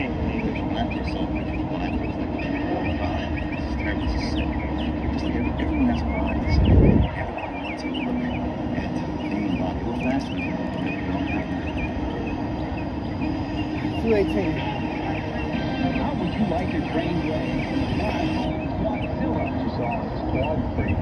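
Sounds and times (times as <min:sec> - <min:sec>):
bird chirps: 0:00.0 - 0:21.0
steady low rumble: 0:00.0 - 0:21.0.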